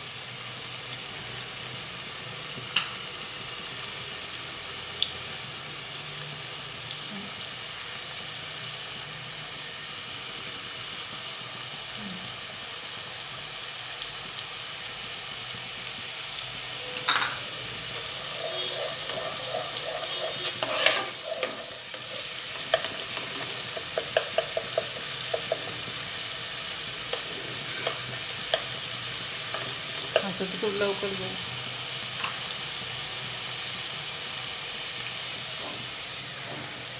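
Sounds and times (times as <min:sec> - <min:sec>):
paste sizzling in oil: 0:00.0 - 0:36.9
metal spoon clinking on pot: 0:17.0 - 0:17.5
spoon scraping taps: 0:18.0 - 0:25.7.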